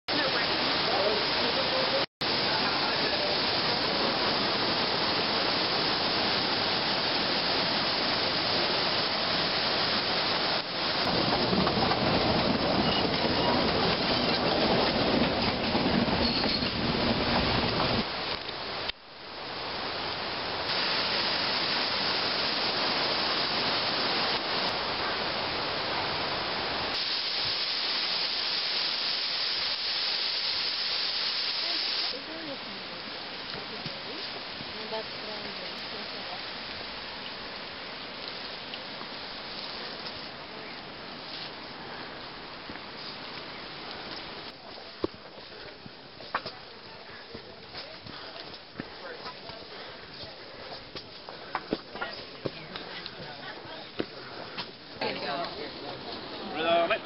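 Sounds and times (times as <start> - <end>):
waterfall rushing: 0.1 - 57.0.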